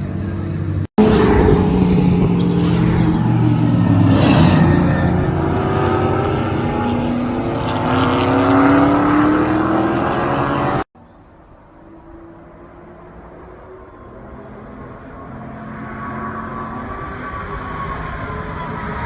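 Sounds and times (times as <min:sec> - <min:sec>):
race car engine accelerating: 0:01.0 - 0:10.9.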